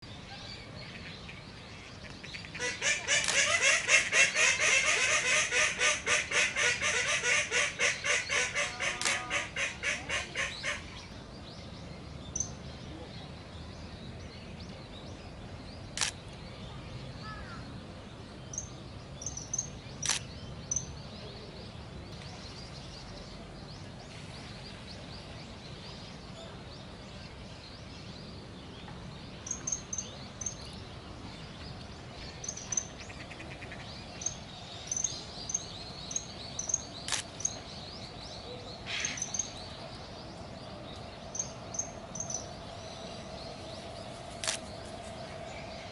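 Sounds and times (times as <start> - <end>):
rapid harsh bird calls: 2.3 - 11.0, 38.8 - 39.6.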